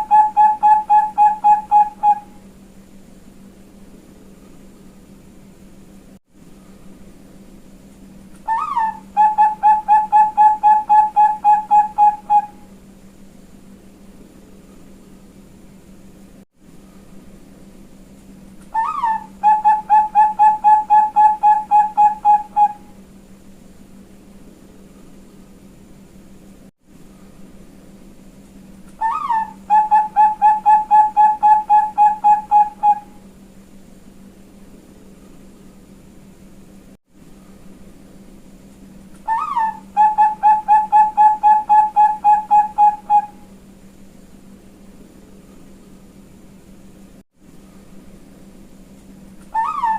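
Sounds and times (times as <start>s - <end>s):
zebra dove cooing: 0.0s - 2.4s, 8.4s - 12.7s, 18.7s - 23.0s, 29.0s - 33.2s, 39.2s - 43.5s, 49.5s - 49.9s
faint steady hum: 0.0s - 49.9s.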